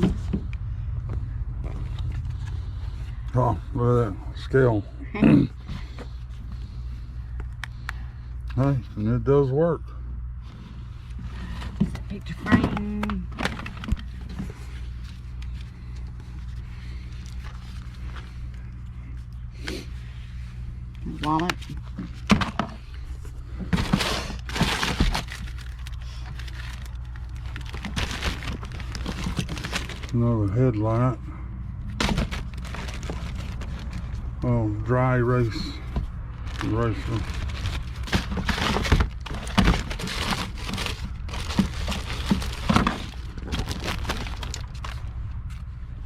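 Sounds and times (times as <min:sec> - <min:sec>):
steady low hum: 0:00.0 - 0:46.0
packaging rustling and crinkling: 0:10.5 - 0:18.8, 0:21.0 - 0:30.4, 0:31.9 - 0:34.4, 0:35.4 - 0:45.7
rummaging through a box: 0:10.5 - 0:31.2, 0:31.8 - 0:45.7.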